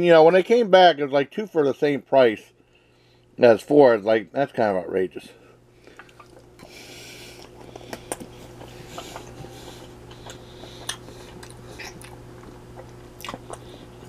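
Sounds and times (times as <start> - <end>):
low steady hum: 0.0 - 14.0
person chewing food: 5.8 - 14.0.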